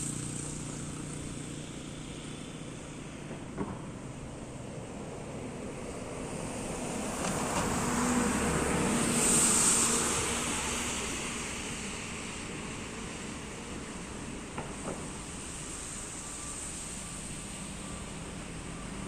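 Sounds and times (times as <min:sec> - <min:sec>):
engine hum: 0:00.0 - 0:19.0
tyre hiss on wet road: 0:00.0 - 0:19.0.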